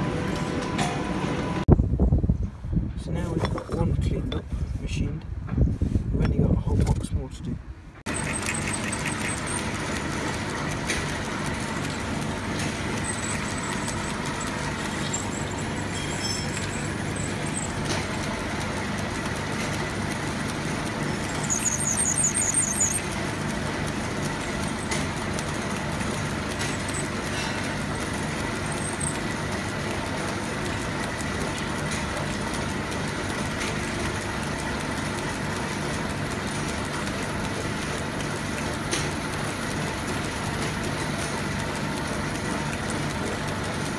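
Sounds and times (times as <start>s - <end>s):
machine tool motor hum: 8.1s - 43.9s
high squeal: 21.3s - 23.0s.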